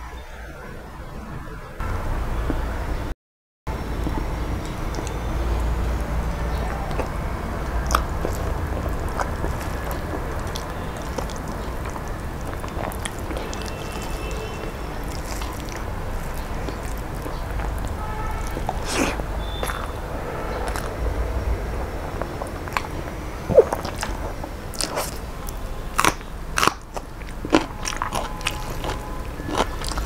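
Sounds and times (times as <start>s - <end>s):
steady low rumble: 3.7s - 26.6s
person chewing food: 3.9s - 30.0s
mouth clicks: 4.0s - 21.0s, 22.0s - 30.0s.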